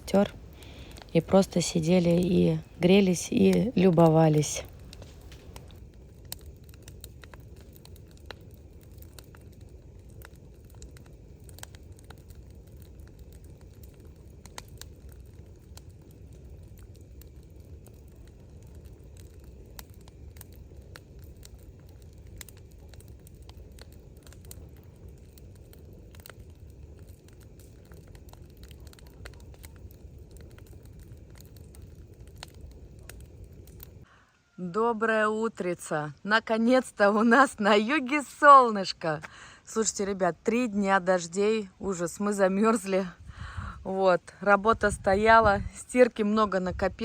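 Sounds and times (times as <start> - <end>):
bonfire crackling and popping: 0.0 - 47.0.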